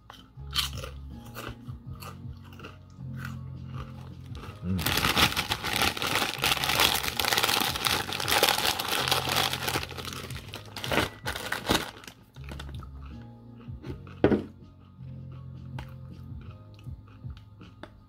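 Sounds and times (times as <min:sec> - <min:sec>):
plastic packaging crinkling: 0:04.7 - 0:12.7.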